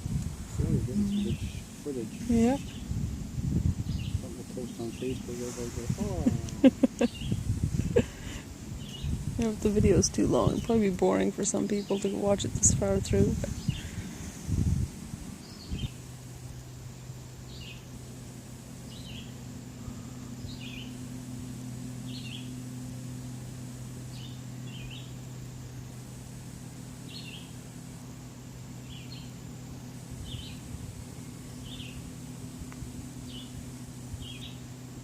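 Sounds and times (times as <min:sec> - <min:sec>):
low motor hum: 0:00.0 - 0:35.0.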